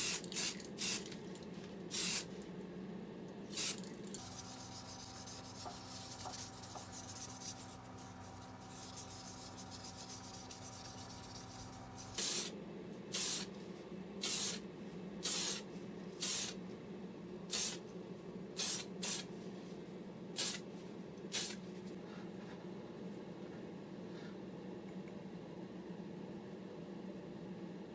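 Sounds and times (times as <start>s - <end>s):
aerosol spray bursts: 0.0s - 1.0s, 1.9s - 2.3s, 3.5s - 5.6s, 12.0s - 12.5s, 13.1s - 13.5s, 14.2s - 14.6s, 15.2s - 15.6s, 16.2s - 16.6s, 17.5s - 17.8s, 18.6s - 19.3s, 20.4s - 20.6s, 21.3s - 21.6s.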